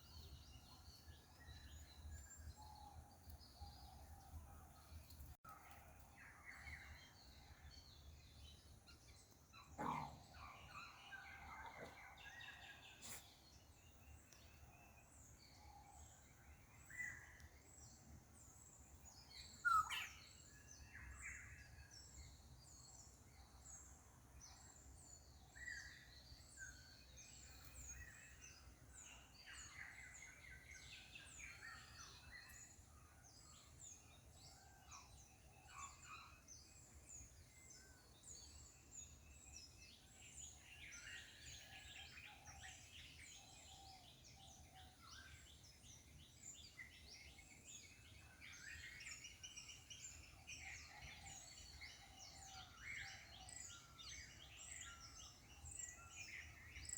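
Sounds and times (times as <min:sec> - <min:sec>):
lower bird calls: 0:19.4 - 0:20.5.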